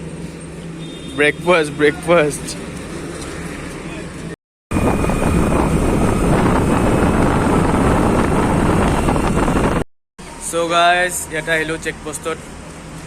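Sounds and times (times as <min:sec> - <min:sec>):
road noise: 0:00.0 - 0:13.0
wind noise on microphone: 0:04.7 - 0:09.8.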